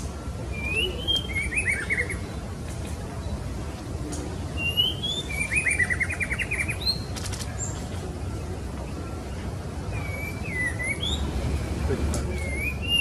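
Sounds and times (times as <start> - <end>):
bird calling with whistles: 4.6 - 7.1, 9.9 - 11.3, 12.3 - 13.0.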